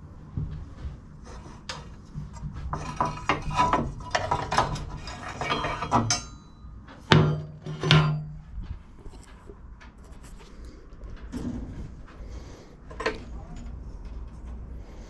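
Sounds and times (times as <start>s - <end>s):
hand tools striking metal parts: 3.1s - 8.3s.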